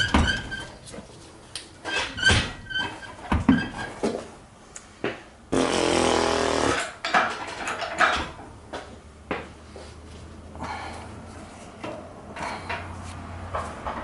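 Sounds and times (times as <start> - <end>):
metal clanks and knocks: 6.8 - 8.9, 11.8 - 14.0.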